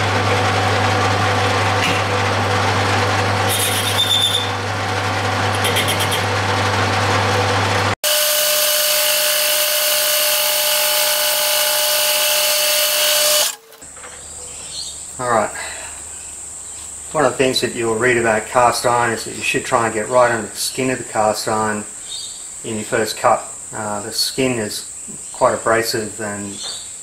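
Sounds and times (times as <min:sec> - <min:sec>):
high steady machine tone: 0:00.0 - 0:13.8
lathe cutting metal: 0:00.0 - 0:13.8
lathe motor hum: 0:00.0 - 0:13.8.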